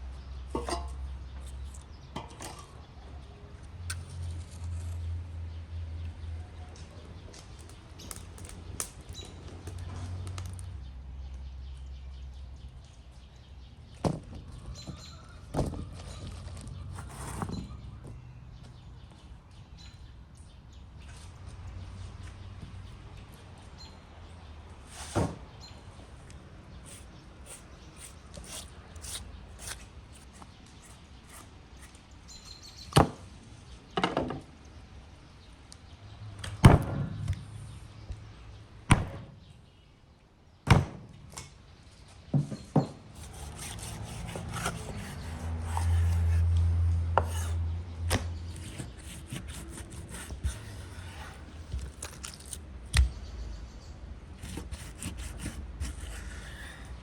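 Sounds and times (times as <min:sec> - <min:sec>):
scraping and rubbing: 0:15.7 - 0:17.8, 0:26.9 - 0:32.1, 0:43.2 - 0:52.7, 0:54.4 - 0:57.0
sharp knocks and thuds: 0:36.4 - 0:37.5, 0:38.9 - 0:39.4.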